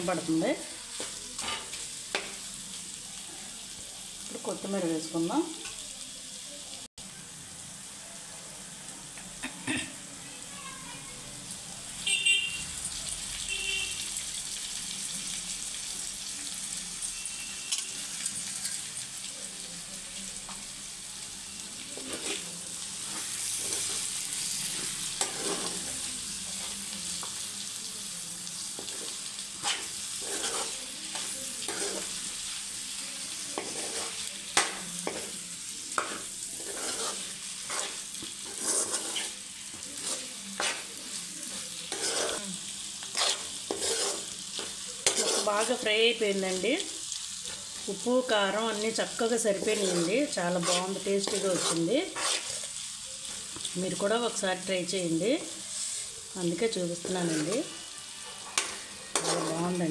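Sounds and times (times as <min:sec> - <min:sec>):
meat sizzling in oil: 0:00.0 - 0:59.9
steel spoon scraping a pan: 0:01.0 - 0:02.4, 0:22.0 - 0:26.8, 0:28.8 - 0:32.3, 0:33.5 - 0:35.4, 0:36.0 - 0:45.9, 0:48.0 - 0:53.7, 0:57.1 - 0:59.9.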